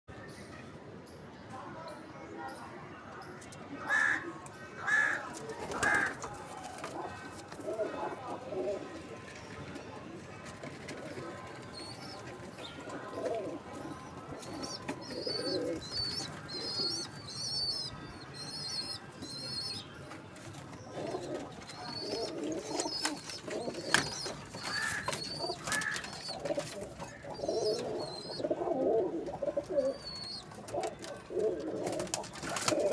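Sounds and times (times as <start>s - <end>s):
pigeons cooing: 4.9s - 9.0s, 10.8s - 19.8s, 20.7s - 32.9s.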